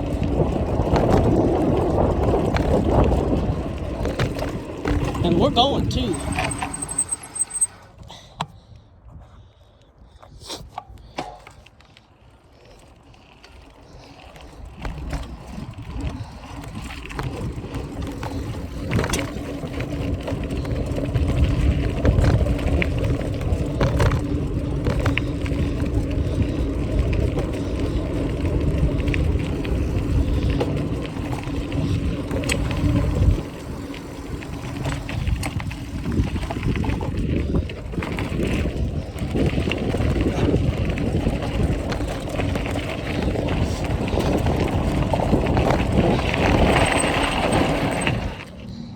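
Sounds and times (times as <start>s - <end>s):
wind buffeting microphone: 0.0s - 6.6s, 8.6s - 11.2s, 14.0s - 48.9s.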